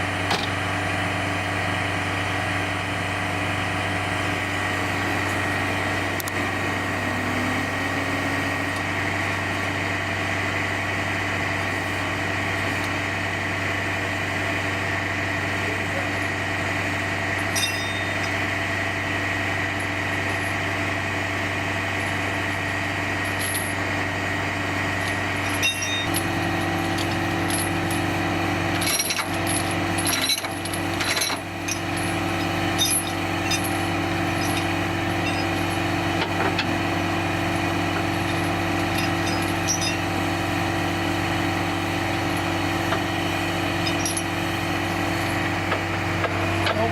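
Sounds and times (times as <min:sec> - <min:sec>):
diesel truck engine idling: 0:00.0 - 0:17.3
knocks and clanks of gear: 0:00.3 - 0:00.6, 0:25.0 - 0:26.3, 0:28.7 - 0:32.2, 0:38.0 - 0:40.0.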